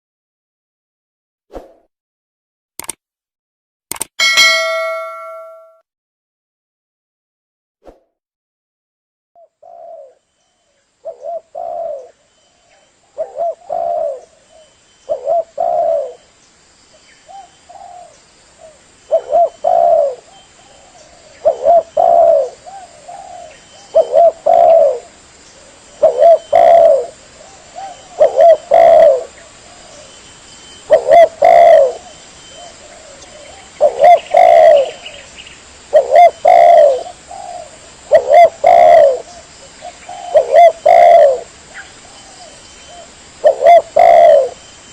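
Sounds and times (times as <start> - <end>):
dove cooing: 9.4 - 10.2, 11.0 - 16.3, 17.3 - 30.2, 30.8 - 35.3, 35.9 - 44.6.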